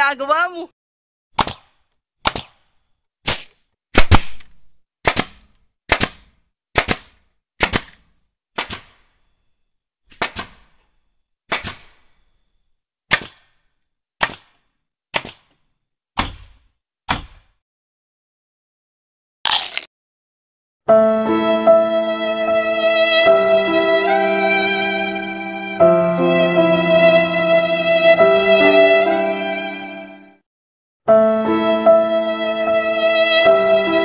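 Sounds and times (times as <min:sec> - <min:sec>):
nail gun firing: 0:01.4 - 0:02.7, 0:03.3 - 0:09.1, 0:10.1 - 0:10.7, 0:11.5 - 0:12.1, 0:13.1 - 0:13.6, 0:14.2 - 0:15.6.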